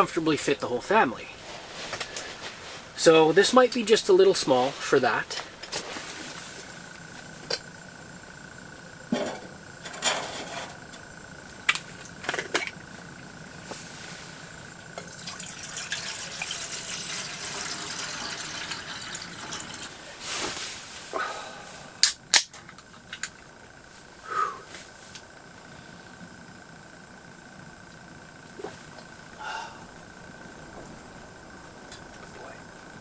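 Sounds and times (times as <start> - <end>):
water pouring into container: 15.0 - 20.0.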